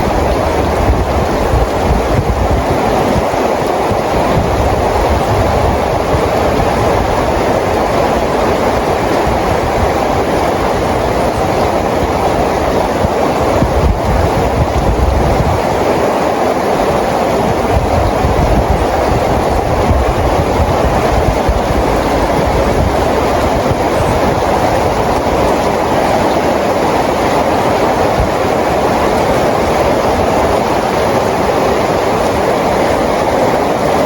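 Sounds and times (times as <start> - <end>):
steady rain: 0.0 - 34.0.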